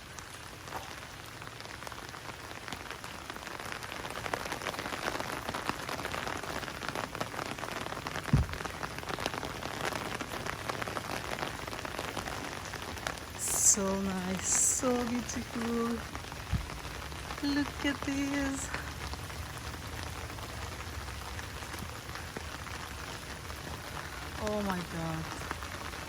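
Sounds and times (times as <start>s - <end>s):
raindrops ticking: 0.0s - 26.0s
low thump: 8.3s - 8.7s.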